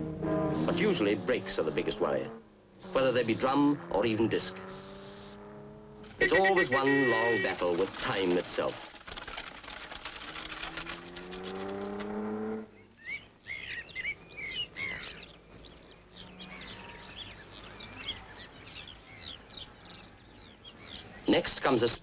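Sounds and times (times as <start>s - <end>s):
rally car engine accelerating: 0.0s - 6.3s, 9.2s - 12.8s
birds chirping: 0.0s - 22.0s.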